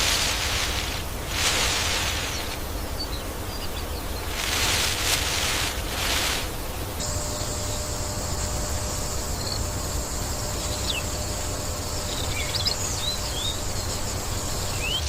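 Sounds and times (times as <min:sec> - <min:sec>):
insects shrilling: 0:00.0 - 0:03.5, 0:04.1 - 0:15.0
bird chirps: 0:07.0 - 0:15.0.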